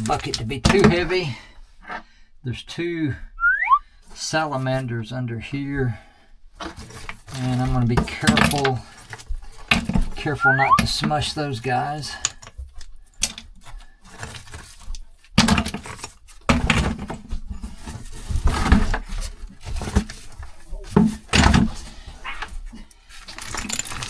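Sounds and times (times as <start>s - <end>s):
rocks clattering into bucket: 0.0s - 1.1s, 6.6s - 24.0s.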